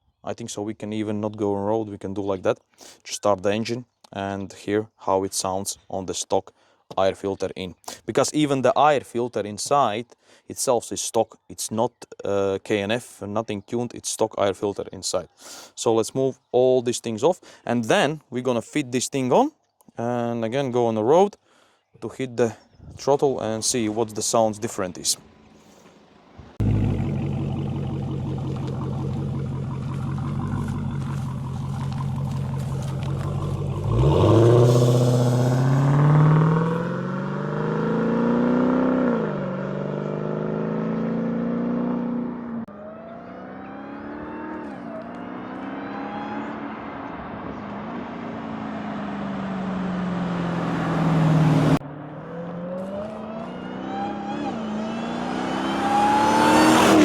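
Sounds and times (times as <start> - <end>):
car engine accelerating: 24.0 - 57.0
supercharger whine: 26.4 - 57.0.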